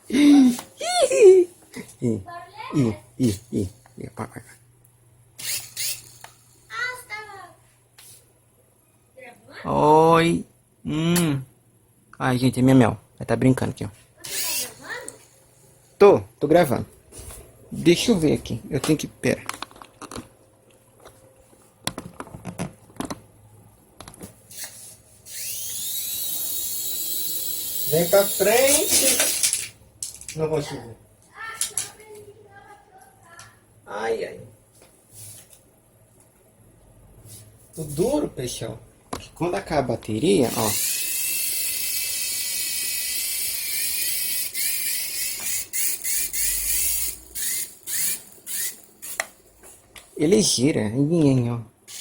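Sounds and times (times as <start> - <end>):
toy helicopter rotor motor whine: 5.4 - 6.8, 14.2 - 15.7, 24.5 - 29.7, 40.4 - 49.3.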